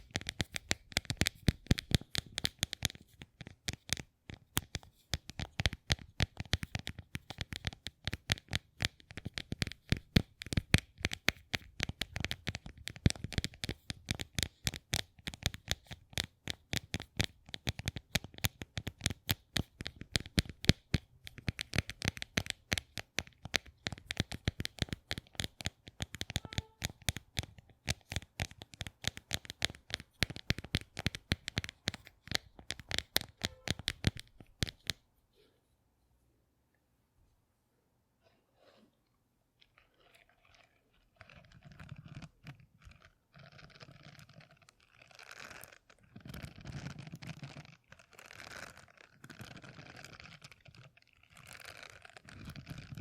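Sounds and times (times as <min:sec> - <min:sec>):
rapid clicking and tapping: 0:00.0 - 0:35.0.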